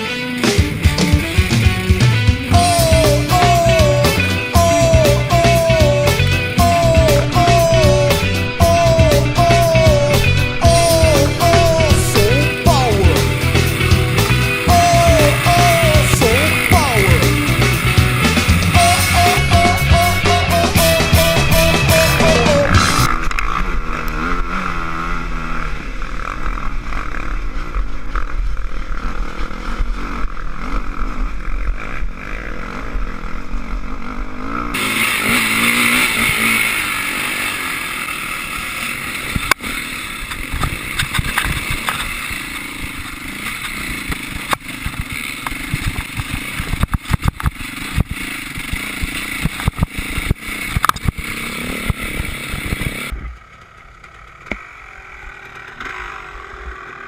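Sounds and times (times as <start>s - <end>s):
dirt bike engine revving: 0.0s - 57.0s
sharp knocks and rattles: 40.2s - 42.2s, 42.9s - 54.6s.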